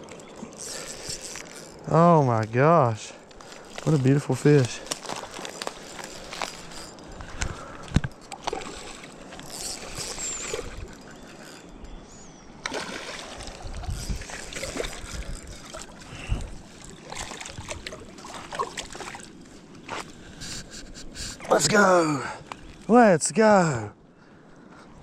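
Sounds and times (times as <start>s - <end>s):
water splashing and sloshing: 0.0s - 11.8s, 12.5s - 21.8s
handling knocks and rustles: 3.2s - 12.0s.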